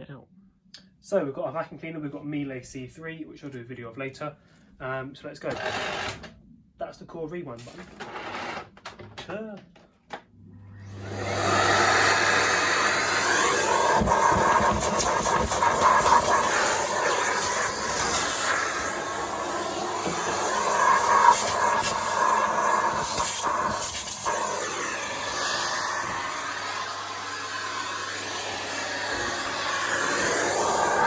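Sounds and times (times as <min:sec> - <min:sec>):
vacuum cleaner suction hiss: 0:10.8 - 0:31.0.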